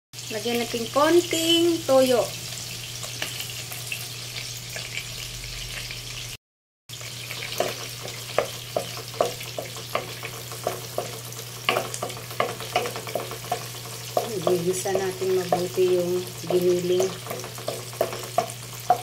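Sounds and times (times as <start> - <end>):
meat sizzling in a wok: 0.2 - 19.0
wooden spatula knocking pan: 7.6 - 19.0.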